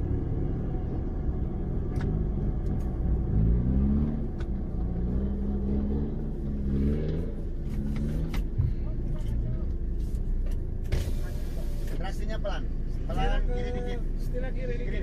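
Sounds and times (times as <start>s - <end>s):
vehicle engine revving: 0.0s - 9.8s.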